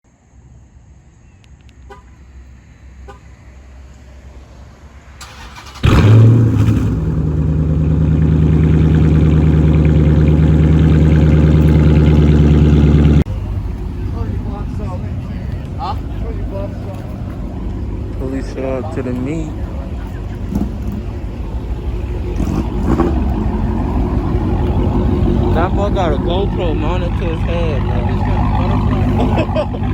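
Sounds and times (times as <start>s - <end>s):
car engine starting: 5.0s - 29.9s
car engine idling: 5.2s - 29.9s.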